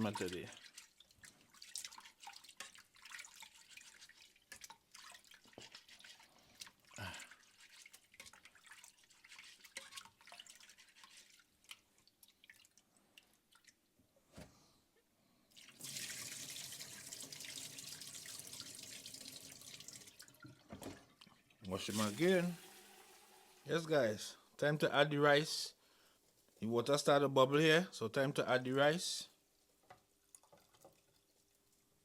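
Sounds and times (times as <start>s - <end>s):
water dripping and splashing: 0.0s - 13.9s, 15.5s - 23.8s, 29.9s - 31.8s
tap water running: 15.6s - 24.1s.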